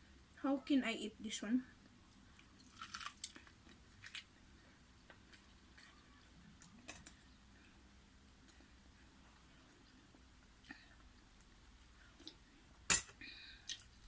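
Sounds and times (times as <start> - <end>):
chewing and crunching food: 2.1 - 7.3.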